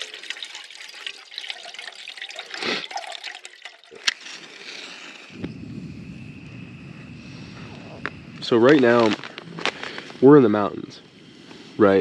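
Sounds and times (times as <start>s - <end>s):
water trickling and splashing: 0.0s - 5.4s
small crackles: 2.5s - 11.7s
low rumble: 5.3s - 11.8s.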